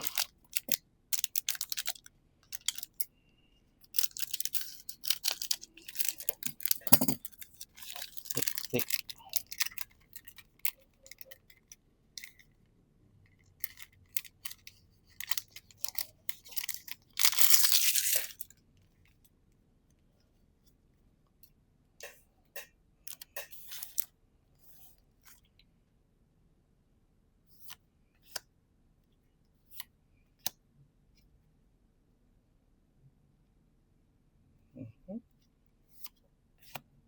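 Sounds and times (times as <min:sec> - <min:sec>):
wrapper ripping open: 0:00.0 - 0:02.0, 0:04.0 - 0:09.8, 0:15.2 - 0:18.5
wrapper crinkling: 0:00.0 - 0:03.0, 0:03.9 - 0:10.4, 0:13.6 - 0:18.5.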